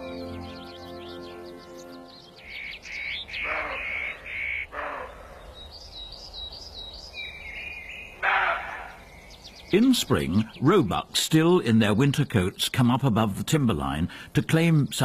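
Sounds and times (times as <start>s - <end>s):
bird harsh calls: 0.0s - 10.7s
high bird chirps: 0.0s - 10.8s
wild birds calling: 0.0s - 11.2s.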